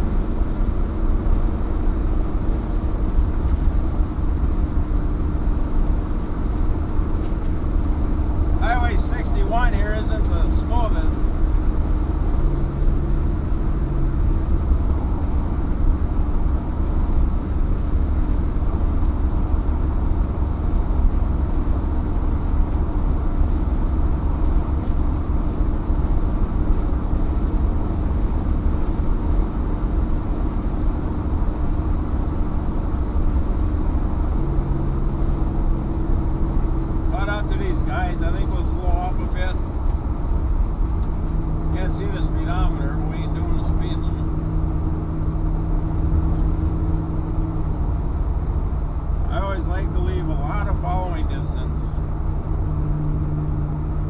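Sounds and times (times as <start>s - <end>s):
exhaust drone: 0.0s - 54.0s
road and tyre rumble: 0.0s - 54.0s.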